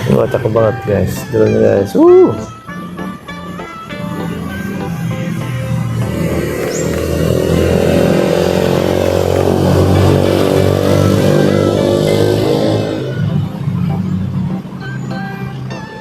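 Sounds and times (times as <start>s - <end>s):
background music: 0.0s - 16.0s
vehicle engine passing by: 4.0s - 15.8s.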